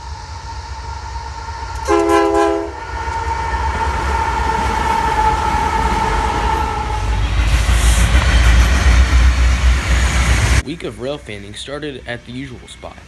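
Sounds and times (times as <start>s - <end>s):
train rumbling: 0.0s - 13.0s
locomotive horn blast: 1.7s - 9.3s.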